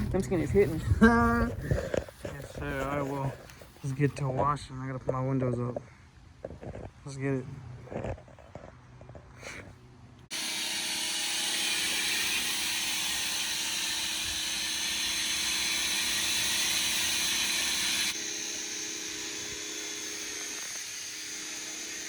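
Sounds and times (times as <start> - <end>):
motor hum: 10.3 - 22.0.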